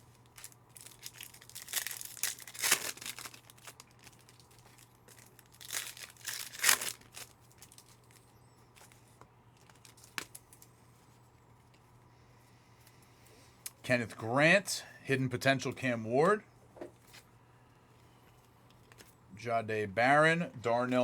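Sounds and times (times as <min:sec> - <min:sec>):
foil wrappers tearing and crinkling: 0:00.0 - 0:08.2, 0:09.6 - 0:10.6.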